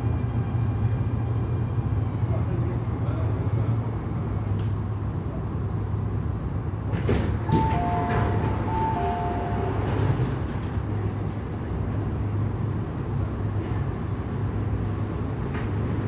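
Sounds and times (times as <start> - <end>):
train humming: 0.0 - 16.0
two-note door chime: 7.5 - 9.8.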